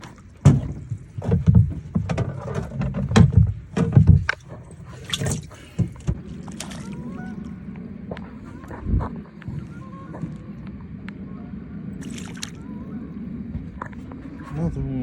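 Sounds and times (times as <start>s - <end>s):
knocks and thumps in a boat: 0.0s - 10.9s
steady low hum: 0.0s - 15.0s.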